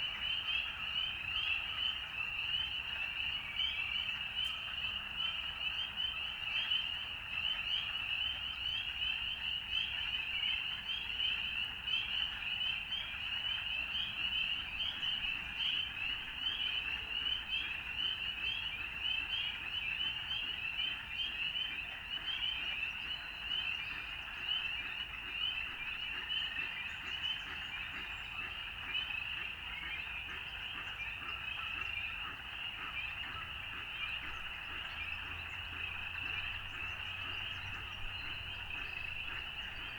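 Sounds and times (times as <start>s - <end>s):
chorus of frogs calling: 5.2s - 39.9s.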